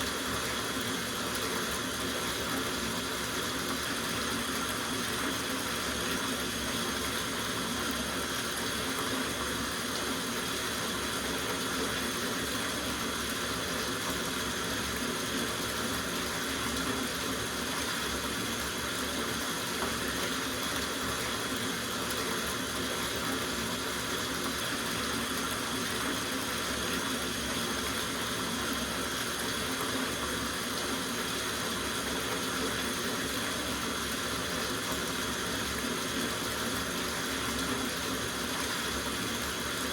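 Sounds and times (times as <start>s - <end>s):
tap water running into bathtub: 0.0s - 39.9s.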